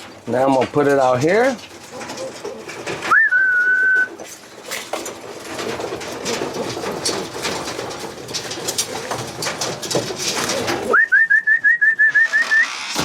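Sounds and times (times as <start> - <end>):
birds clicking and tapping: 0.0 - 13.0
pigeons cooing: 1.6 - 4.4, 5.4 - 13.0
rising whistled note: 10.9 - 12.9.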